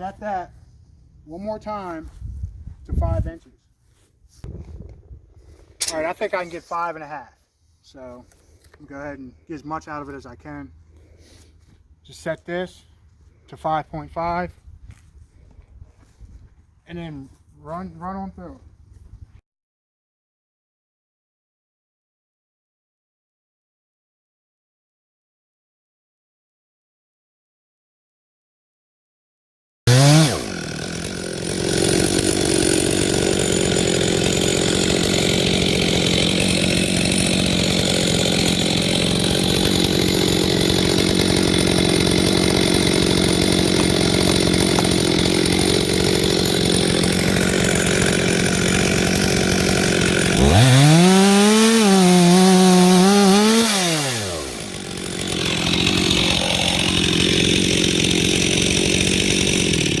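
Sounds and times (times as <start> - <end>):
chainsaw cutting log: 5.8 - 6.9, 29.9 - 60.0.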